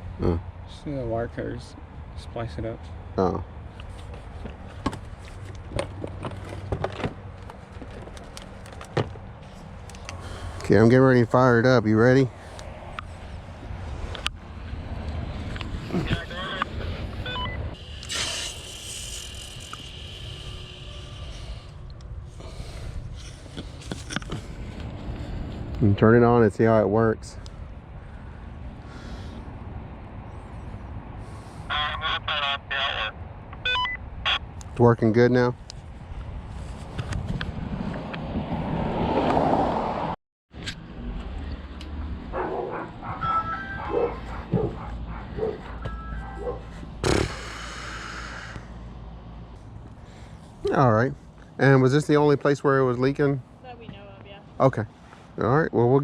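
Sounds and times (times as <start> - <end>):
steady low hum: 0.0 - 31.7, 40.8 - 56.0
faint outdoor background: 0.0 - 56.0.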